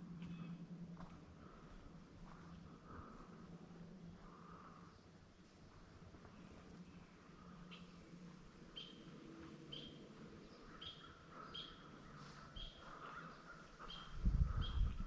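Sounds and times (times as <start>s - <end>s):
bird calling: 8.7s - 15.0s.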